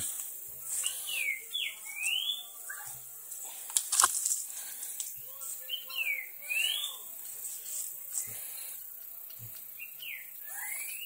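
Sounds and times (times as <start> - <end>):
bird whistling sliding notes: 10.0 - 11.0.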